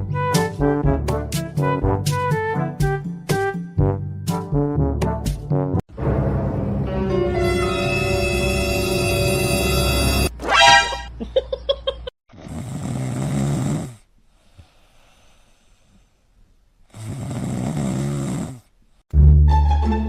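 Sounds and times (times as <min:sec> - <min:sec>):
rasping snores: 0:12.3 - 0:15.4, 0:16.9 - 0:18.8.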